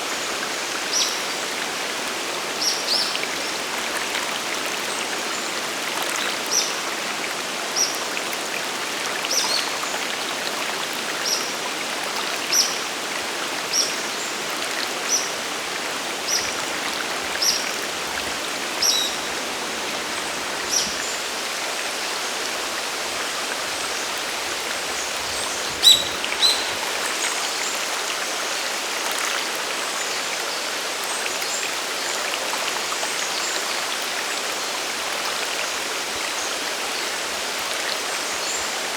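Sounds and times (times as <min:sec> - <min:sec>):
waterfall and river rushing: 0:00.0 - 0:38.9
bird short high call: 0:25.8 - 0:26.8.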